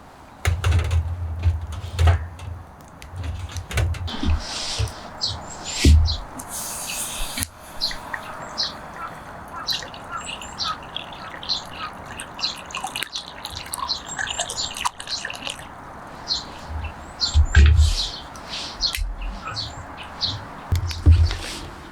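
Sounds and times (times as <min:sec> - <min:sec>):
light background hiss: 0:00.0 - 0:08.8
small birds chirping: 0:00.0 - 0:21.9.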